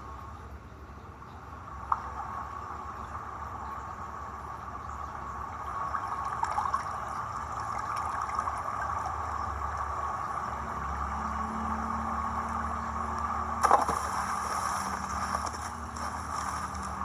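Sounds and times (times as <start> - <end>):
small water splashes: 1.6 - 17.0
water rushing: 1.6 - 17.0.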